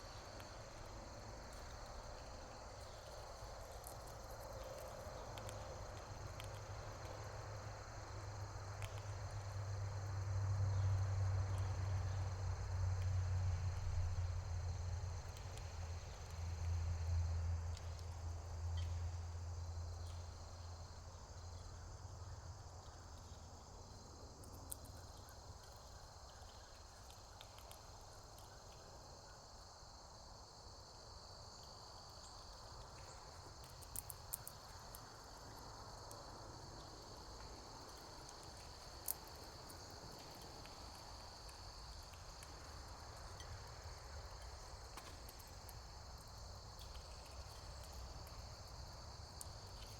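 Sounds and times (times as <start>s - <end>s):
insect chorus trilling: 17.9s - 49.9s.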